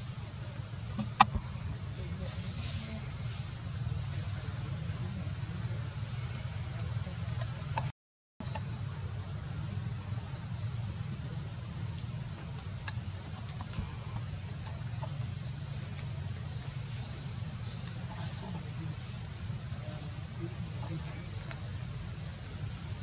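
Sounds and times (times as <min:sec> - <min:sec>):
birds chirping: 0:00.0 - 0:23.0
steady low rumble: 0:00.0 - 0:23.0.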